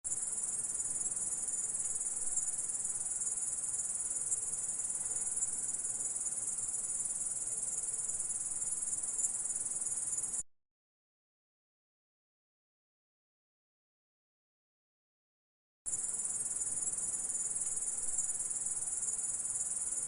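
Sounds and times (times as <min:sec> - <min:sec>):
insect high-pitched trill: 0:00.1 - 0:10.4, 0:15.9 - 0:20.0.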